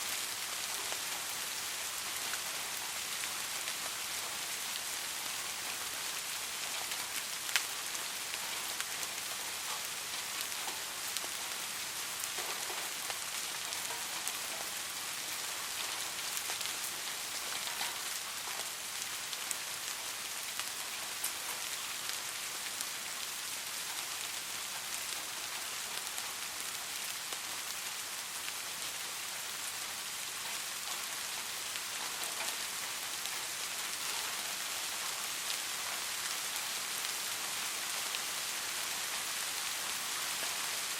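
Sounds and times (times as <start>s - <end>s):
steady rain hiss: 0.0s - 40.9s
raindrops ticking: 30.4s - 37.2s.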